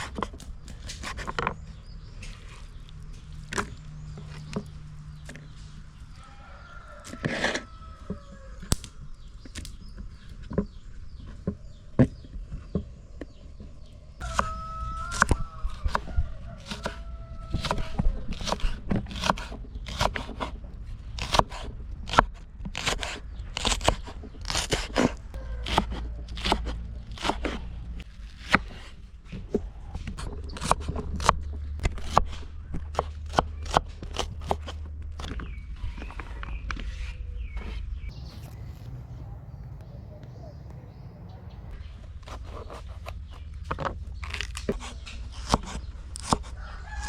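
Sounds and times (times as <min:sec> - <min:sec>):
crunching cuts: 0:14.2 - 0:35.4
low steady rumble: 0:38.1 - 0:42.3.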